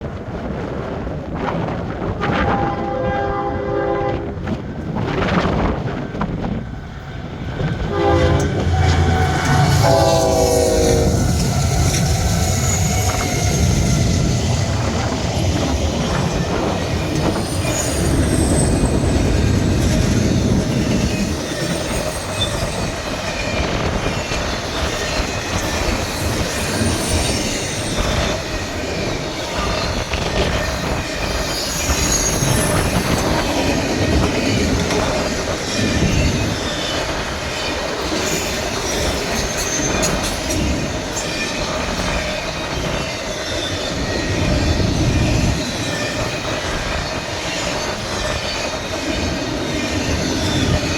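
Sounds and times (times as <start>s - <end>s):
train passing with wheel clatter: 0.0s - 50.9s
train horn blasts: 2.2s - 4.5s, 7.8s - 14.2s.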